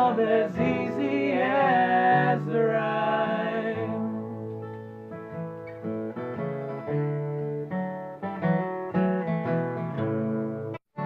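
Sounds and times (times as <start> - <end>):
acoustic guitar plucking and strumming: 0.0 - 11.0.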